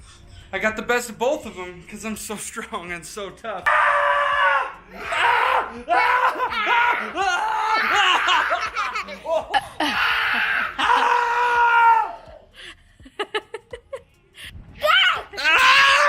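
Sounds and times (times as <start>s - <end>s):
children laughing and shrieking: 5.1s - 12.2s.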